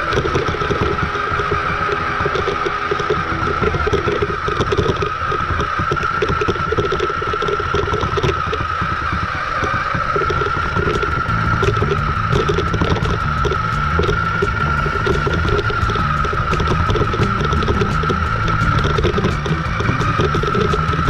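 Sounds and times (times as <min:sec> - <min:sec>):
pulsing low hum: 0:10.7 - 0:21.0.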